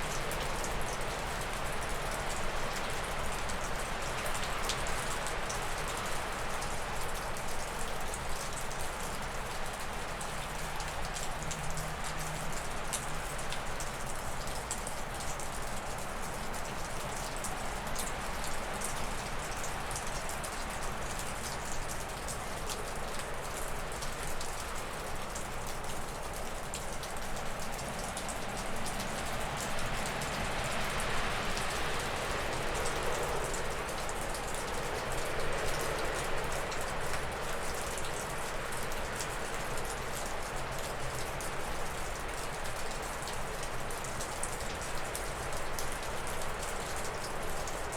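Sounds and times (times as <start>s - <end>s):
water dripping off a roof: 0.0s - 47.9s.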